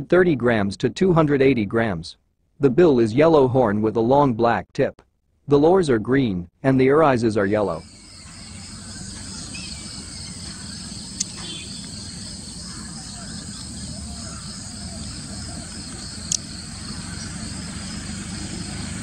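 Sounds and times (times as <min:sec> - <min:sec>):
insect chirring: 0:07.8 - 0:19.0
short sharp clicks: 0:11.1 - 0:12.0.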